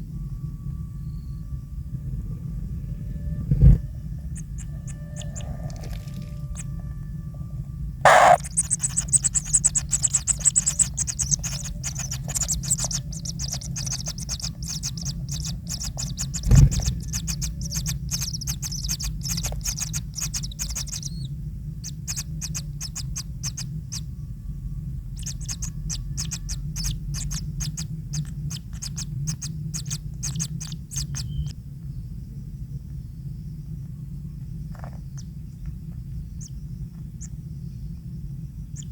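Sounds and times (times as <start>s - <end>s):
kingfisher chattering calls: 4.4s - 5.9s, 8.1s - 21.3s
low thump: 16.4s - 17.1s.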